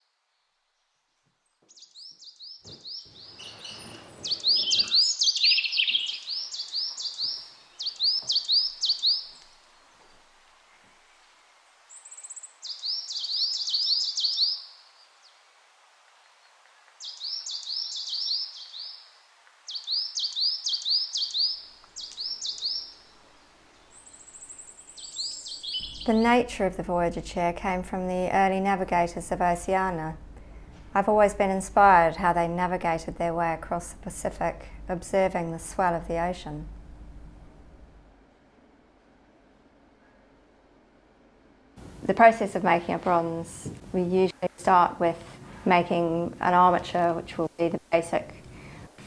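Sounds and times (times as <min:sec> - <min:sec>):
songbird singing chirps: 0:00.0 - 0:15.5, 0:16.1 - 0:30.0, 0:41.8 - 0:49.0.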